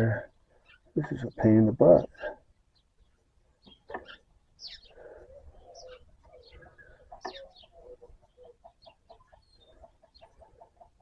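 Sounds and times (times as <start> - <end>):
high falling bird chirps: 2.6 - 10.3.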